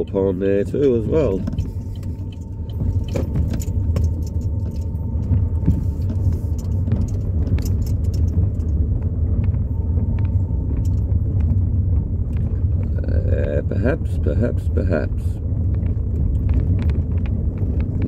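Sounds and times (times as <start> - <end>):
car engine and road rumble: 0.0 - 18.0
clicks and rattles: 0.7 - 9.6.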